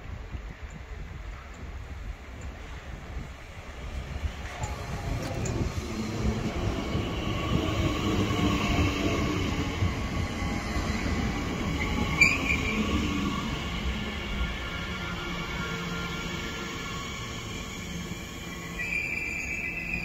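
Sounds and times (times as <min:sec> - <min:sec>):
electric train rumbling: 0:00.0 - 0:20.0
wheel squeal: 0:11.8 - 0:13.0, 0:17.2 - 0:20.0.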